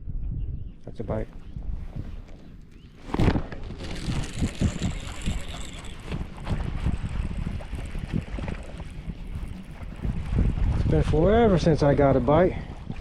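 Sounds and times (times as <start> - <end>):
wind on microphone: 0.0 - 13.0
water splashing: 3.6 - 13.0.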